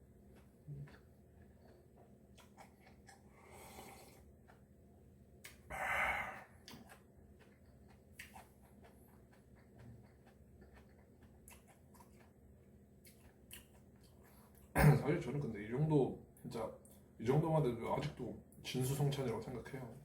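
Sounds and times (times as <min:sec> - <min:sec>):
chewing and mouth sounds: 0:00.2 - 0:04.8, 0:05.4 - 0:14.7
breathy sniff: 0:03.3 - 0:04.2, 0:05.7 - 0:06.6.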